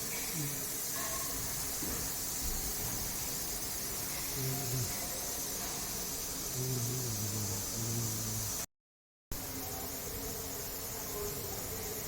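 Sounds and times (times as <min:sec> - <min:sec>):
steady hiss: 0:00.0 - 0:08.7.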